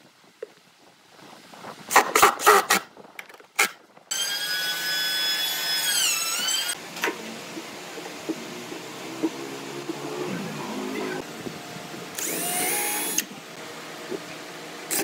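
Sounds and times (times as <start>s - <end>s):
power tool motor whining: 4.1s - 6.8s, 12.1s - 13.3s.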